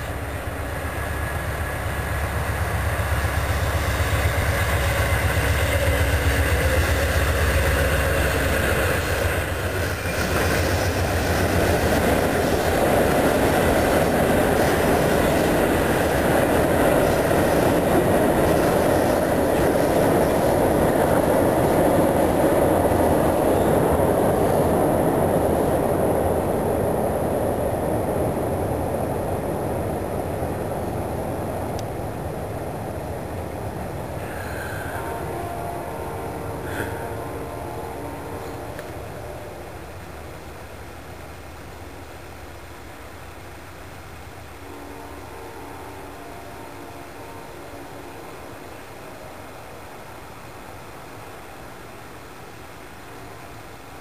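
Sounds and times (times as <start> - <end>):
train wheels rumbling and clattering: 0.0 - 35.3
locomotive engine drone: 0.0 - 54.0.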